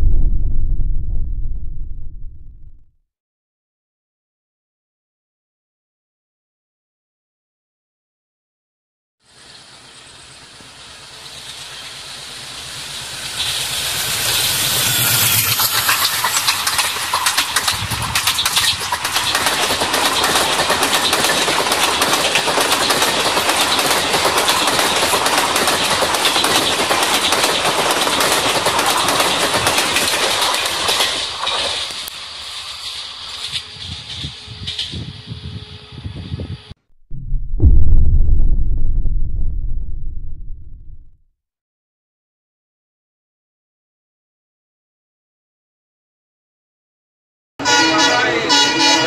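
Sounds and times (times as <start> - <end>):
train passing at speed: 9.3 - 36.2
wheels clacking over rail joints: 14.4 - 34.9.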